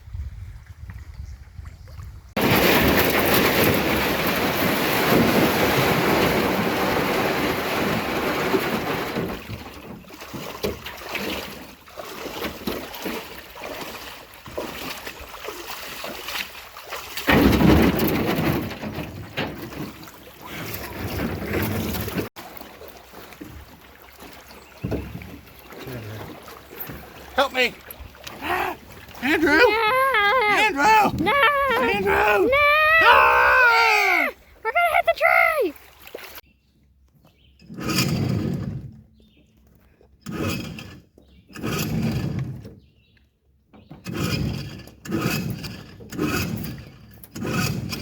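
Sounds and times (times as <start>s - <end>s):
wind buffeting microphone: 0.0s - 2.4s
rushing water: 2.4s - 17.9s, 19.4s - 36.4s.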